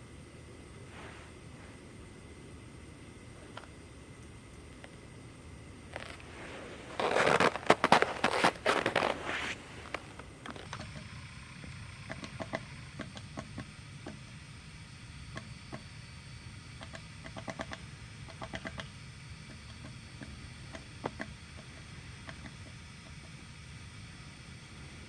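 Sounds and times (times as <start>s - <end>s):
woodpecker tapping on wood: 10.7s - 14.2s, 16.8s - 23.2s.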